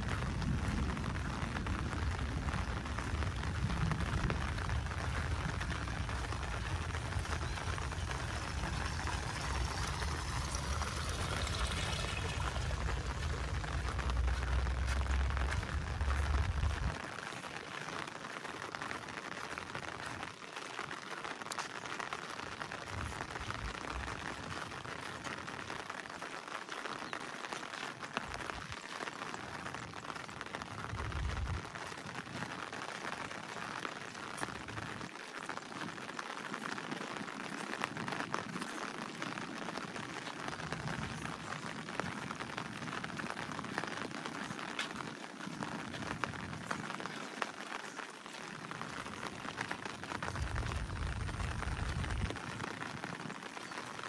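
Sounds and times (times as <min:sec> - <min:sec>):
low rumble: 0:00.0 - 0:17.0
rain falling: 0:00.0 - 0:54.0.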